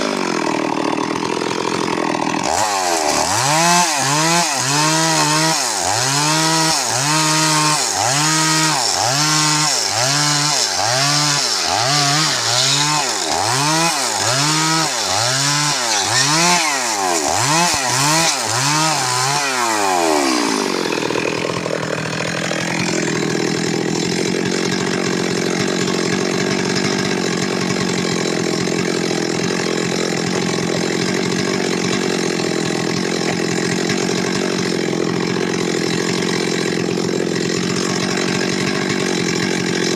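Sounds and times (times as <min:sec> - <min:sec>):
chainsaw engine: 0:00.0 - 0:39.9.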